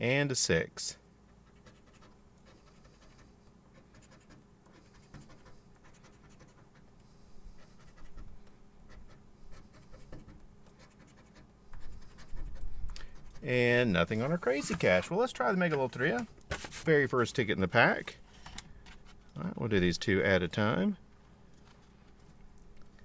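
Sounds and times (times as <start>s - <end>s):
coin scratching lottery ticket: 1.4s - 6.6s.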